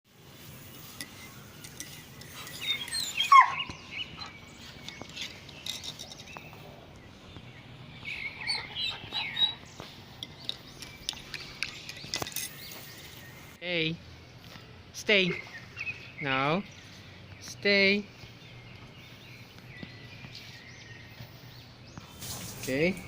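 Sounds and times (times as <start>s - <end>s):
squeaky animal calls: 2.7s - 3.7s.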